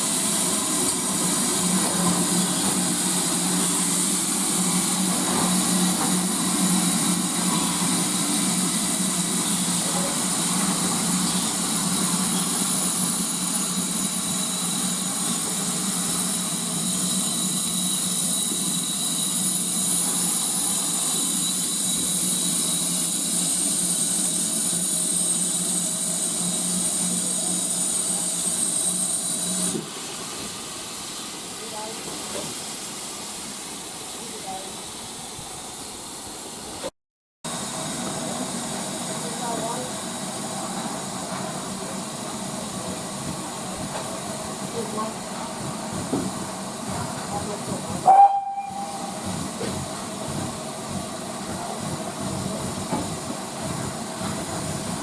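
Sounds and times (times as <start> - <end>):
steam hissing: 0.0 - 36.9, 37.5 - 55.0.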